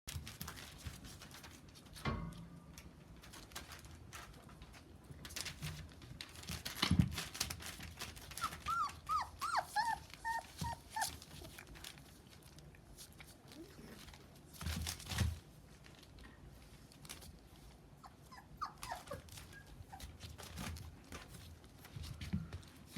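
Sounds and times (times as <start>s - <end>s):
rustling: 0.1s - 22.9s
puppies whimpering: 8.3s - 11.6s, 18.0s - 20.2s.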